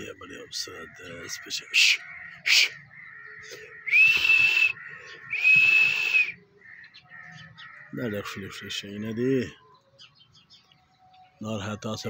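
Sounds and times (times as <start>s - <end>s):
bird whistled calls: 2.4s - 7.1s.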